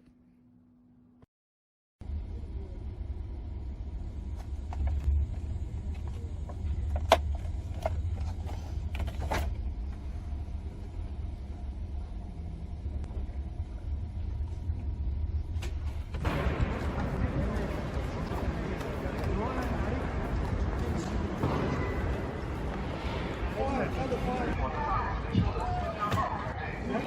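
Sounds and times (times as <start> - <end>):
train rumbling inside carriage: 3.6 - 27.0
rushing noise: 16.2 - 26.1.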